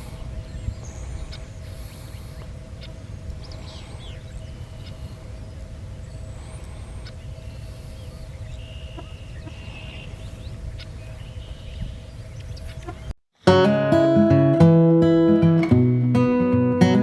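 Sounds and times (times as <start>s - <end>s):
birds giving high calls: 0.0s - 13.1s.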